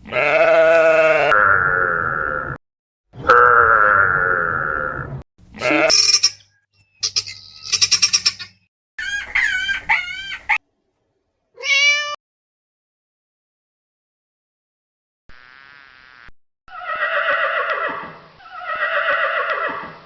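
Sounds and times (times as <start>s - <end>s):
farm animal calls: 0.0s - 1.4s, 5.5s - 10.6s, 16.7s - 20.0s.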